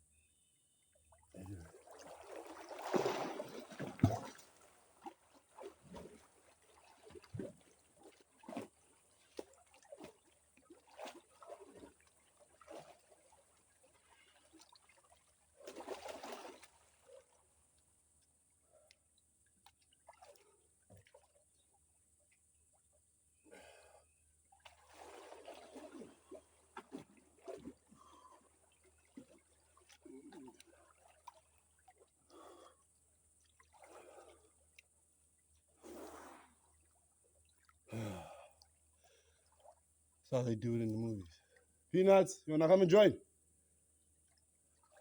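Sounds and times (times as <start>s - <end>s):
swimmer splashing water: 1.5s - 7.4s, 24.7s - 28.3s.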